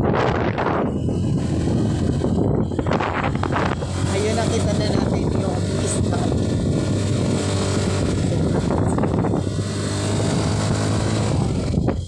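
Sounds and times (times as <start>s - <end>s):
road noise: 0.0s - 12.0s
vehicle engine hum: 0.0s - 12.0s
wind noise: 0.0s - 12.0s.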